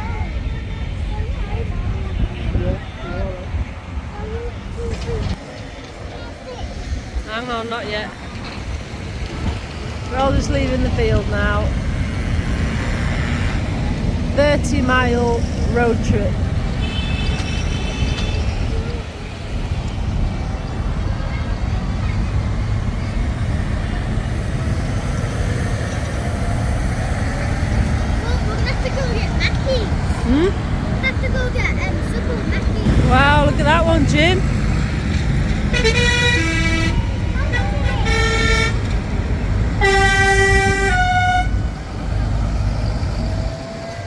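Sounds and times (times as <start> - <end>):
tractor engines rumbling: 0.0 - 44.0
tractor horns tooting: 12.1 - 19.0, 32.9 - 42.4.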